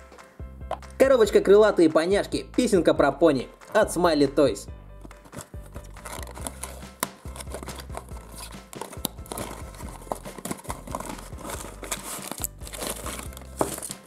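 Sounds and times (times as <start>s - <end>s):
quiet background music: 0.0s - 14.0s
cardboard box tearing: 5.4s - 14.0s.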